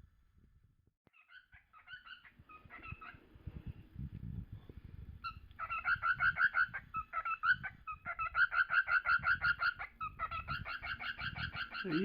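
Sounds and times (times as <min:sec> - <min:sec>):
cockatiel chirping: 0:01.1 - 0:03.2, 0:05.2 - 0:12.0.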